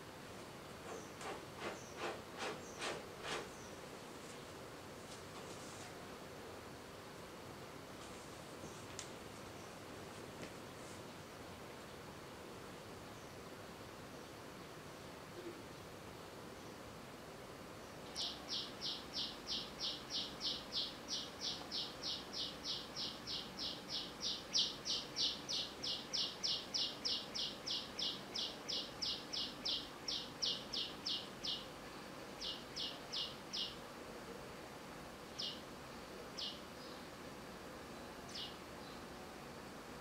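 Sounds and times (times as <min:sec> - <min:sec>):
bird chirping: 0:00.9 - 0:02.0, 0:18.1 - 0:31.7, 0:32.4 - 0:33.8, 0:35.3 - 0:35.7, 0:36.4 - 0:37.1, 0:38.0 - 0:39.1.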